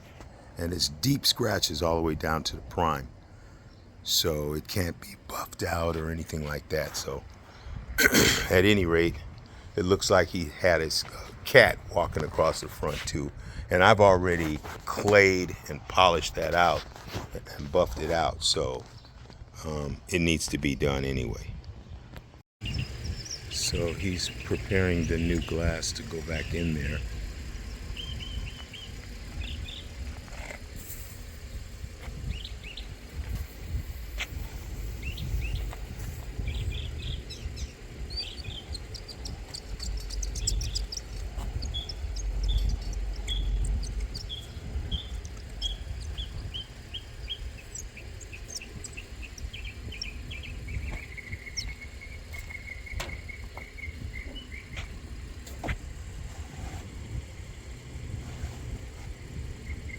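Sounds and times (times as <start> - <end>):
steady low rumble: 21.4 - 59.9
bird singing: 22.6 - 30.2, 31.5 - 55.8, 57.4 - 59.9.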